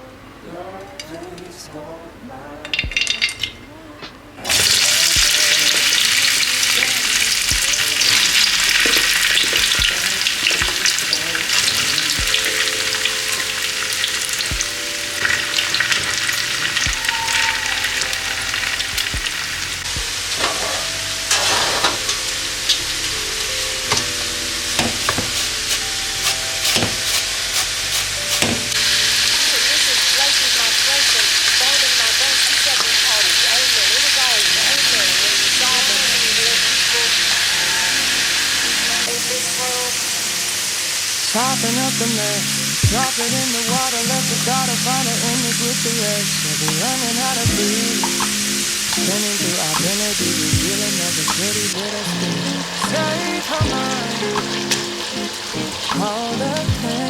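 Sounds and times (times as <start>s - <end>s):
food sizzling in a pan: 24.8s - 41.2s.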